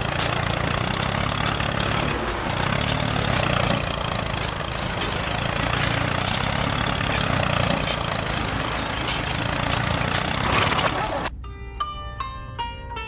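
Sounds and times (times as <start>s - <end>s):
tractor engine humming: 0.0s - 12.4s.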